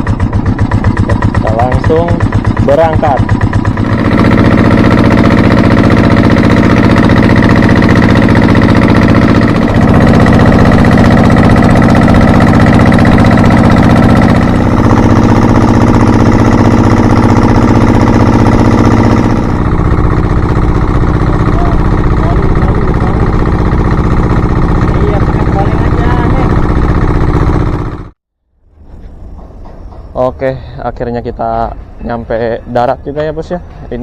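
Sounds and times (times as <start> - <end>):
motor boat engine running: 0.0 - 28.2.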